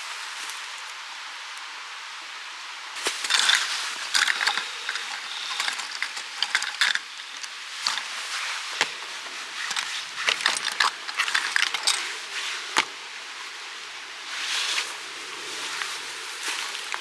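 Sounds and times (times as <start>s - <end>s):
steady hiss: 0.0s - 17.0s
small hard objects handled: 3.0s - 13.0s.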